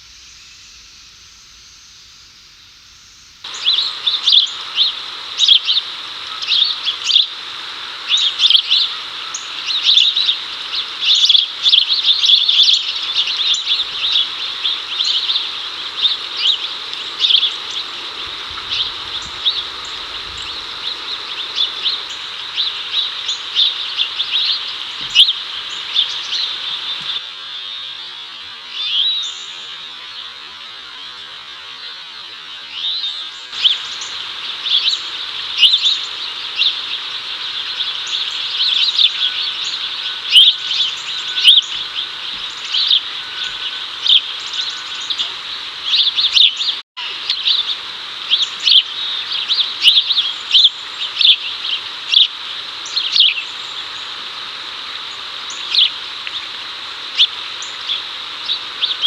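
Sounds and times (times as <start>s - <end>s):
steady background hiss: 0.0s - 59.0s
sparrows chirping: 3.5s - 27.2s, 32.7s - 54.2s.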